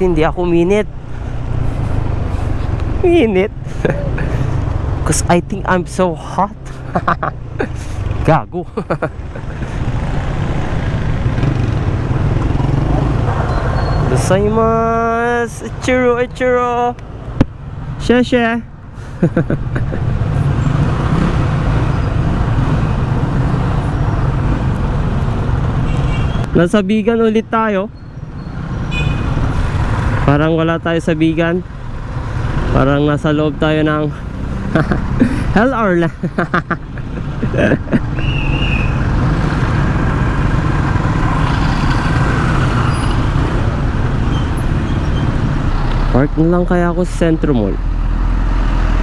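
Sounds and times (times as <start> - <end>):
road noise rushing: 0.0 - 49.0
brief high squeak: 13.5 - 14.1.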